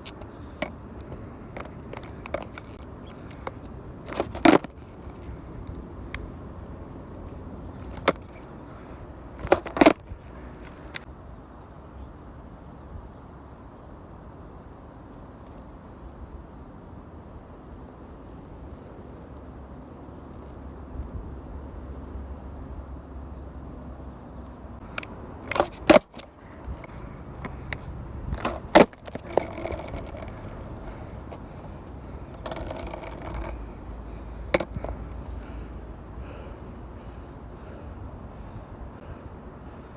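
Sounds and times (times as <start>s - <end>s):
skateboard clacking: 0.0s - 5.4s, 7.8s - 11.1s, 24.8s - 35.7s.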